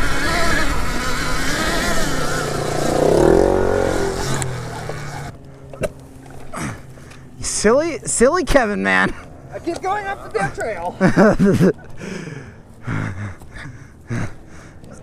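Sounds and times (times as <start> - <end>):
dirt bike motor whine: 0.0 - 11.6.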